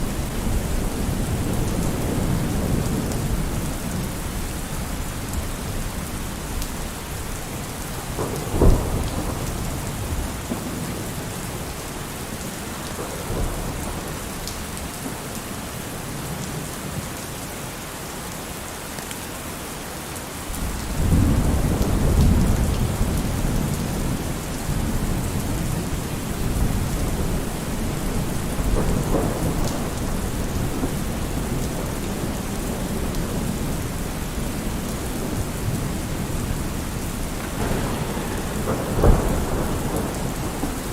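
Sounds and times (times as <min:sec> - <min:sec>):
low rolling thunder rumble: 0:00.0 - 0:11.8, 0:20.6 - 0:40.9
heavy rain: 0:00.0 - 0:40.9
thunder crack: 0:08.2 - 0:10.8, 0:37.1 - 0:40.9.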